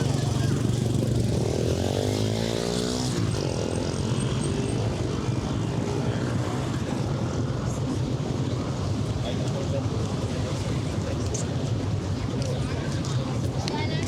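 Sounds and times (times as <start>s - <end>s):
engine passing by: 0.0s - 7.1s
low rumble of city traffic: 0.0s - 14.0s.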